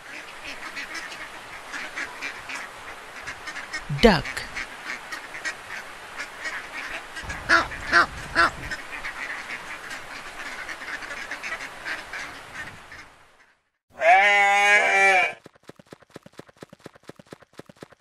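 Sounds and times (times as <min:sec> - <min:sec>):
ducks quacking: 0:00.1 - 0:13.2.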